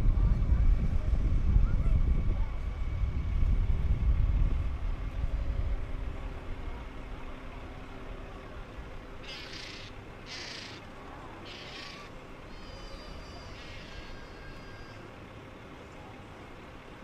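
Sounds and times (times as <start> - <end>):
wind rumble on microphone: 0.0 - 9.0
seagull calling: 9.2 - 15.2.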